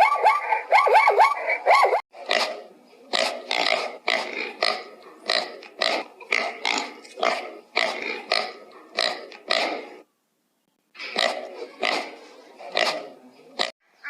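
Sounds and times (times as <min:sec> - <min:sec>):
pig grunting: 0:02.2 - 0:10.0, 0:11.0 - 0:13.8.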